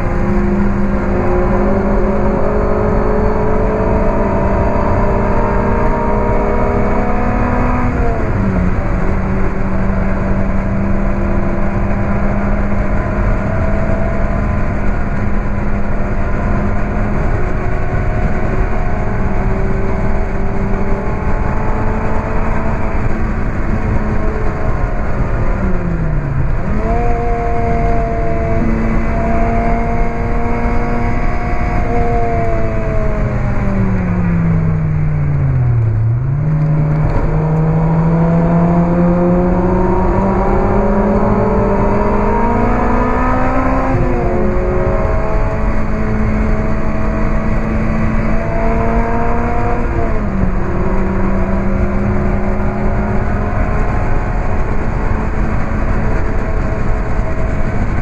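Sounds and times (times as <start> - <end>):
car engine revving: 0.0 - 58.0
road and wind noise: 0.0 - 58.0.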